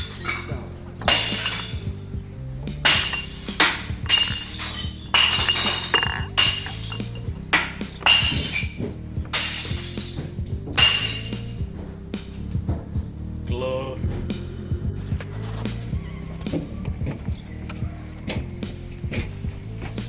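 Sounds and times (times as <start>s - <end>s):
glass bottles smashing: 0.0s - 2.1s, 2.8s - 11.7s.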